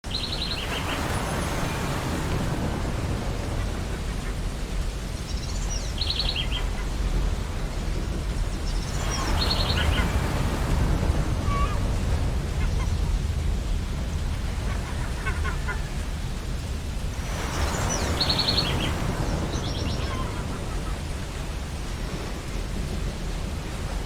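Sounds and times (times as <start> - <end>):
ocean surf breaking: 0.1 - 24.0
seagulls calling: 5.5 - 8.1, 8.8 - 22.3.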